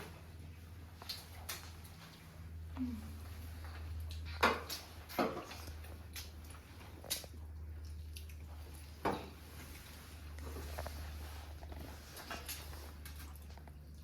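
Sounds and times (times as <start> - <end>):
eating clicks and smacks: 4.0 - 8.8.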